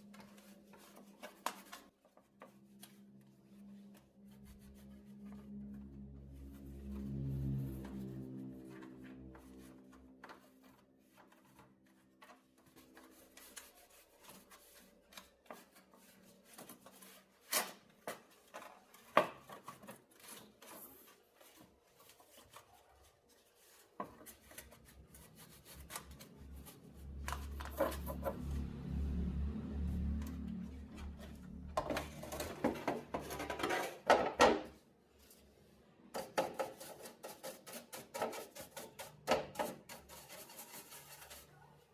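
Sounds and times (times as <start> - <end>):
low hum: 4.4 - 10.3, 26.6 - 32.5.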